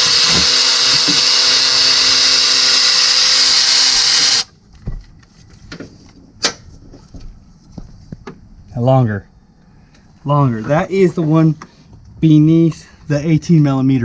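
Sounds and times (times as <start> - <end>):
electric ratchet spinning: 0.0 - 4.5.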